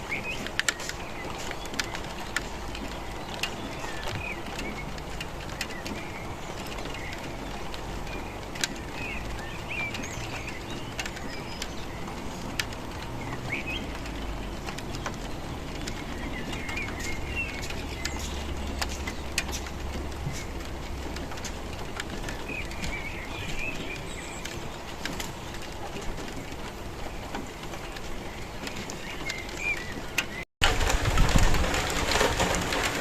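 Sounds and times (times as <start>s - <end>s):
steady rain falling: 0.0s - 33.0s
bird chirps: 13.2s - 20.6s, 22.2s - 25.7s.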